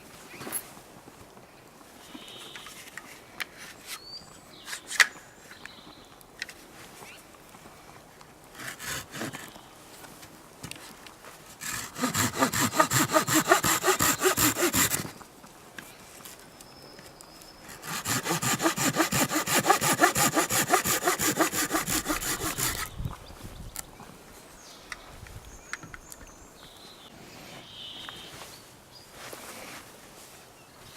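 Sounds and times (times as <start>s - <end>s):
hand saw cutting wood: 8.5s - 9.6s, 11.6s - 15.2s, 17.7s - 23.0s.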